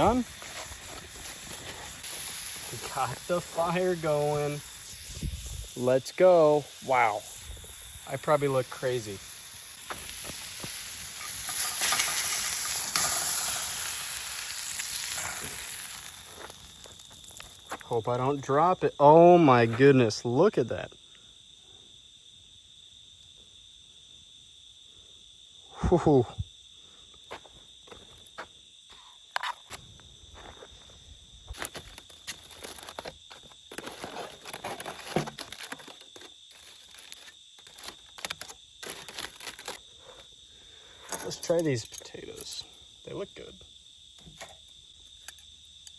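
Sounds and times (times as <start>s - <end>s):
food sizzling over fire: 0.0s - 19.8s, 31.4s - 39.9s
high insect trill: 0.0s - 45.9s
rustling and clattering of objects: 31.5s - 40.3s.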